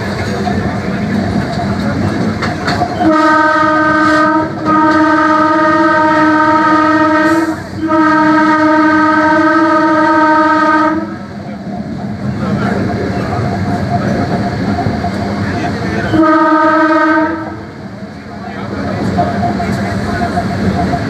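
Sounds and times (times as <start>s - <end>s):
moving train running noise: 0.0s - 21.0s
train air horn blasts: 3.0s - 11.2s, 16.0s - 17.6s.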